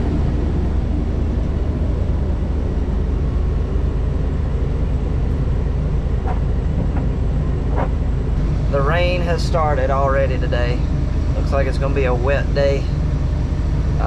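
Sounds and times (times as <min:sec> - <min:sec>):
large vehicle engine rumbling: 0:00.0 - 0:14.0.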